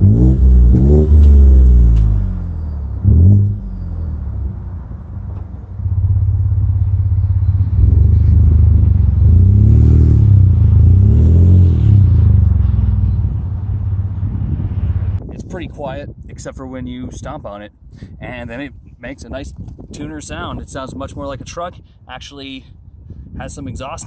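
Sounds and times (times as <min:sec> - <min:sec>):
car exhaust revving: 0:00.0 - 0:15.2.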